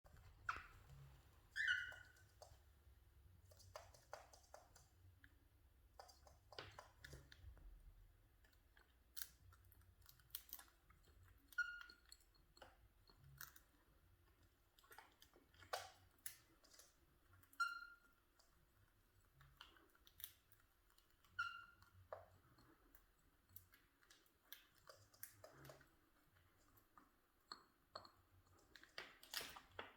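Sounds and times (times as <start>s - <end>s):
soft bird chirps: 1.5s - 2.4s.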